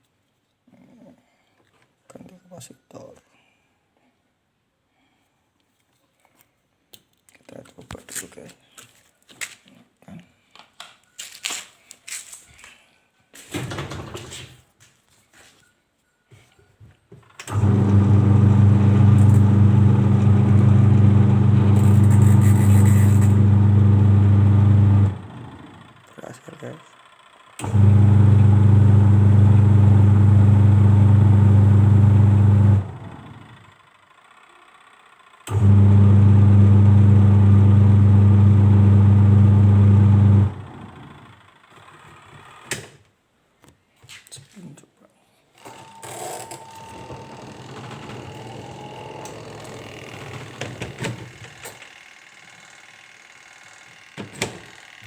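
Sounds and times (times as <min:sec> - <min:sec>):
washing machine motor humming: 0:17.4 - 0:26.1, 0:27.6 - 0:33.8, 0:35.4 - 0:41.5.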